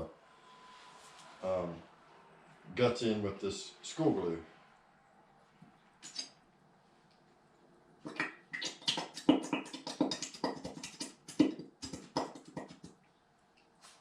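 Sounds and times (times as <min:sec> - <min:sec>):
glue squelching and sputtering: 0:08.0 - 0:13.0.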